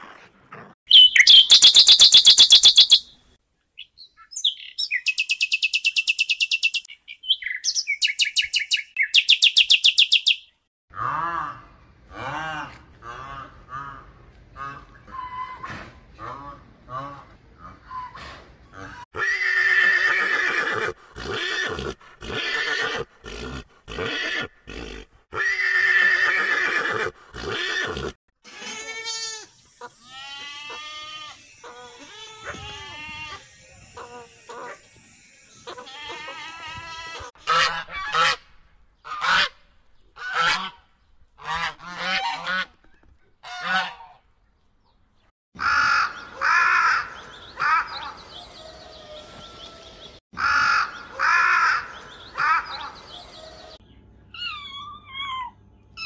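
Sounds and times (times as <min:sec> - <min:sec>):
harsh bird calls: 0:00.9 - 0:03.1, 0:03.8 - 0:10.6, 0:45.2 - 0:56.0
horse neighing: 0:19.2 - 0:28.2
goose honking: 0:37.4 - 0:38.4, 0:39.0 - 0:39.6, 0:40.2 - 0:40.8, 0:41.4 - 0:42.7, 0:43.4 - 0:44.2.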